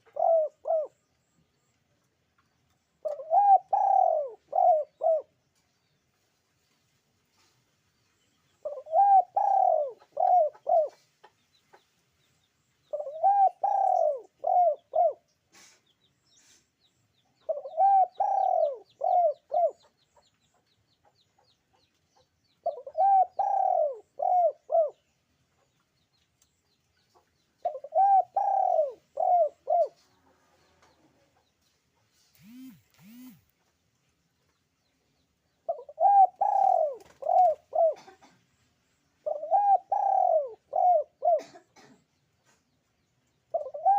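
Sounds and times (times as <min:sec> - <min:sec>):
dove cooing: 0:00.0 - 0:01.2, 0:03.0 - 0:05.4, 0:08.6 - 0:11.1, 0:12.9 - 0:15.7, 0:17.4 - 0:19.9, 0:22.6 - 0:25.0, 0:27.6 - 0:30.2, 0:32.4 - 0:33.4, 0:35.7 - 0:38.4, 0:39.2 - 0:42.0, 0:43.5 - 0:43.9.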